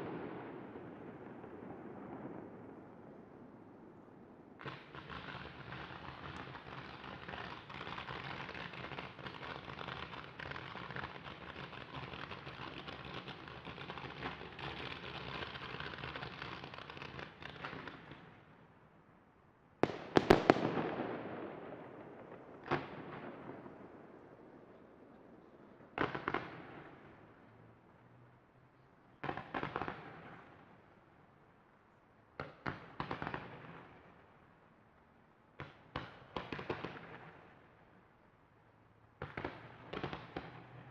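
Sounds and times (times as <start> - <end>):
fireworks crackling: 0.0 - 3.2, 4.6 - 18.4, 19.8 - 27.5, 39.2 - 40.9
loud firework bangs: 19.8 - 24.5.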